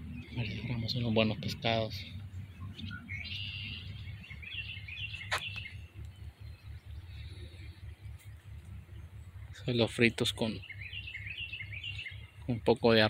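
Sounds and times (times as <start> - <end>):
low outdoor rumble: 0.0 - 13.0
small birds chirping: 0.0 - 13.0
sharp click: 5.2 - 6.1.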